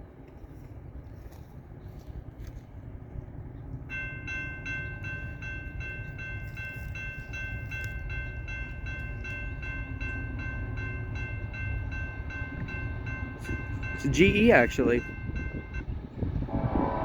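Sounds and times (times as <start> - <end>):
freight train rumbling: 0.0 - 17.0
crossing warning bell ringing: 3.8 - 16.2.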